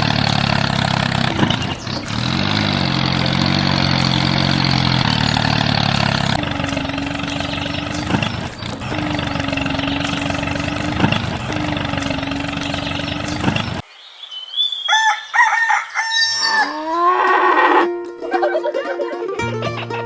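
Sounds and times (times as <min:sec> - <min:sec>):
small motor running: 0:00.0 - 0:13.8
rooster crowing: 0:14.8 - 0:17.9.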